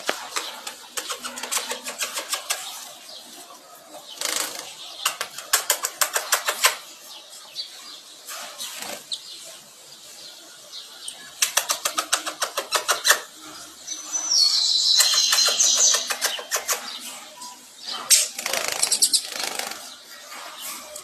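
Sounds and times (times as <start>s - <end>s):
bird wings fluttering clicks: 0.0s - 2.8s, 4.2s - 6.8s, 11.4s - 13.2s, 15.0s - 16.9s
short high bird chirp: 13.9s - 16.8s.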